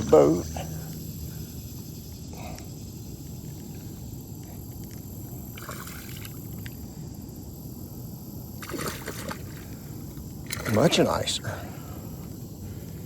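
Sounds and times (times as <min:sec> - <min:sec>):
water splashing against boat: 0:08.6 - 0:09.8, 0:10.4 - 0:11.3.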